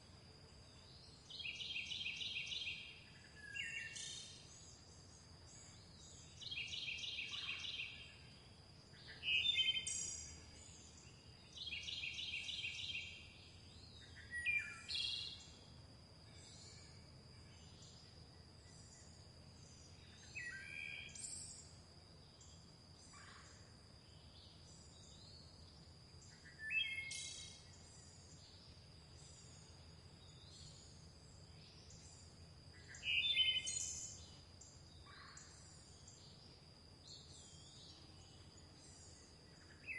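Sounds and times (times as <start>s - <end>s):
songbirds singing: 0.4s - 39.9s.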